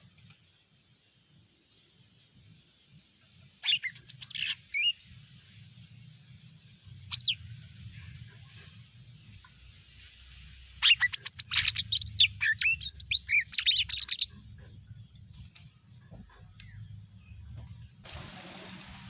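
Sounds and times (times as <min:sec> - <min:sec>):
bird singing whistled notes: 0:03.6 - 0:05.0, 0:07.1 - 0:07.5, 0:10.8 - 0:14.3
faint low hum: 0:05.1 - 0:19.0.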